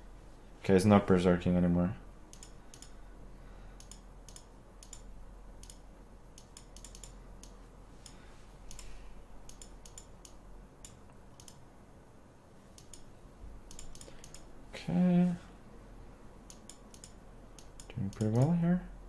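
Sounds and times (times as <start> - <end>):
faint low hum: 0.0 - 19.0
computer mouse clicks: 2.3 - 3.0, 3.8 - 8.9, 9.5 - 11.6, 12.8 - 14.5, 16.5 - 18.5.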